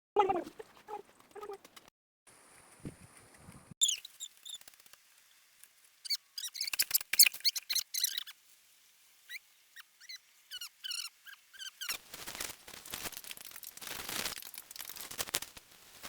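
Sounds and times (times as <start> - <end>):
animal chirps and squeaks: 3.8 - 4.8, 6.0 - 8.4, 9.2 - 12.0.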